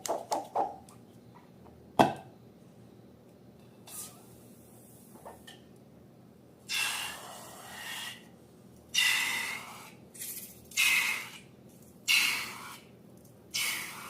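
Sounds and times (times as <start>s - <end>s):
air hissing from balloon neck: 6.7s - 8.2s, 9.0s - 11.4s, 12.1s - 12.8s, 13.5s - 14.0s.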